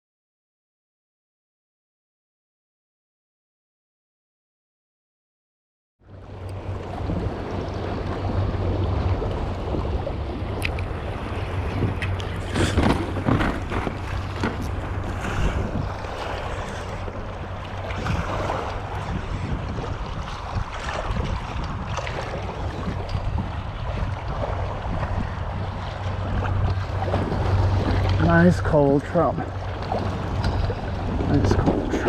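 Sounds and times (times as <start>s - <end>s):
water splashing against kayak: 6.3s - 32.0s
wind buffeting microphone: 6.4s - 32.0s.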